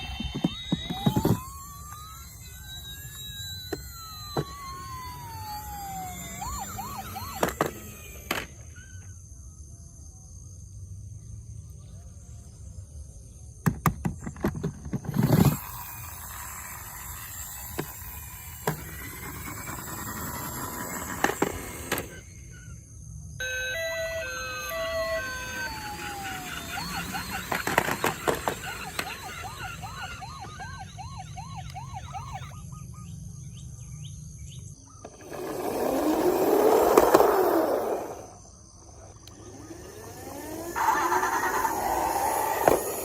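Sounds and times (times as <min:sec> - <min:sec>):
plastic toys clicking and knocking: 0:00.0 - 0:08.6, 0:13.7 - 0:22.2, 0:24.8 - 0:30.6
toy electronic siren: 0:00.0 - 0:09.2, 0:15.0 - 0:33.6, 0:35.0 - 0:43.0.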